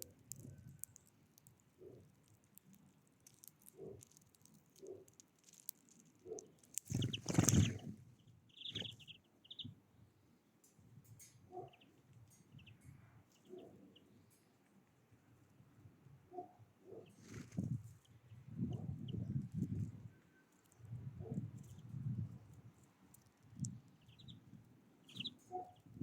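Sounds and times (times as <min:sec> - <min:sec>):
birds chirping: 0:06.3 - 0:09.8, 0:11.5 - 0:14.2, 0:23.6 - 0:26.0.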